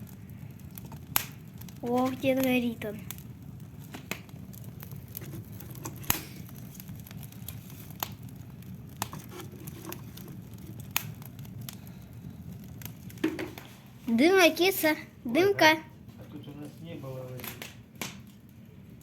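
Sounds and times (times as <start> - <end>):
wood fire crackling and popping: 0.0 - 19.0
steady low rumble: 10.1 - 13.2.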